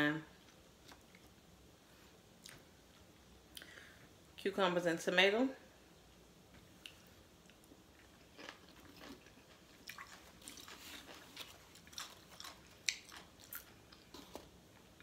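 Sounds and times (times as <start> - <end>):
person chewing crunchy salad: 6.8 - 15.0.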